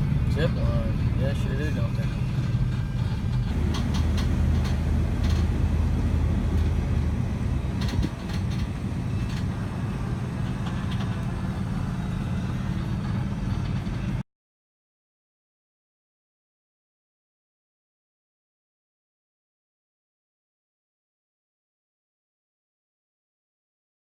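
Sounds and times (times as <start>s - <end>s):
car engine and road noise: 0.0s - 14.2s
light rattles and ticks: 3.3s - 11.4s.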